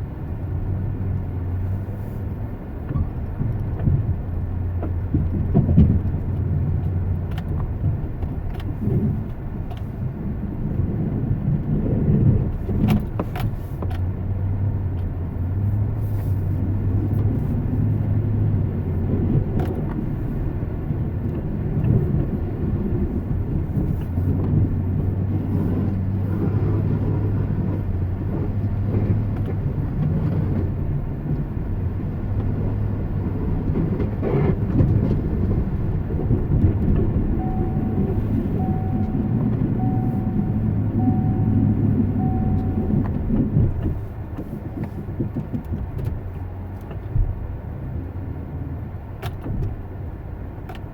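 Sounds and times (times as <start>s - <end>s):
car interior road hum: 0.0s - 50.9s
short electronic beeps: 37.4s - 43.0s.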